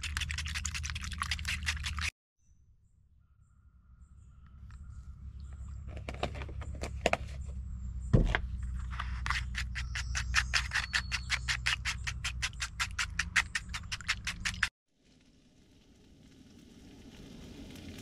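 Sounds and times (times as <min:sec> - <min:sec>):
spoon beating eggs in bowl: 0:00.0 - 0:02.1, 0:09.3 - 0:14.7
thump: 0:08.1 - 0:08.5.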